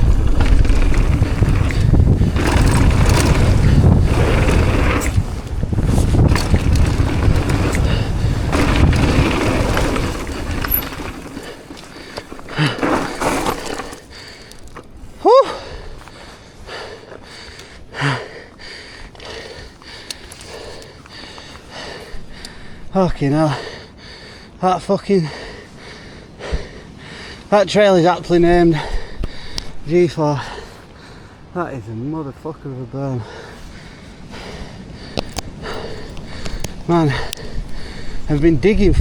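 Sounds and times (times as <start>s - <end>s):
bike clicks and rattles: 0.0s - 15.1s, 19.2s - 22.5s, 35.1s - 38.5s
wind noise on microphone: 0.0s - 15.1s, 34.2s - 39.0s.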